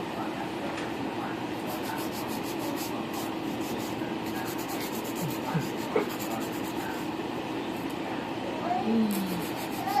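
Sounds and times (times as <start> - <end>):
nail file rasping on nails: 1.6 - 7.1, 9.1 - 10.0.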